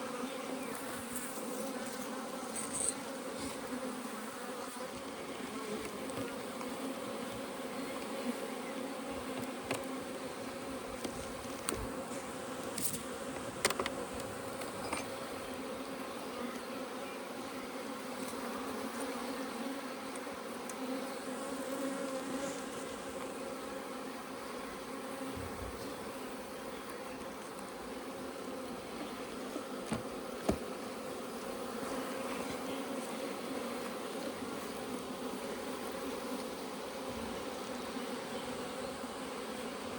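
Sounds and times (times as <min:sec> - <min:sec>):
honeybees buzzing: 0:00.0 - 0:39.9
sharp clicks or knocks: 0:12.6 - 0:15.1.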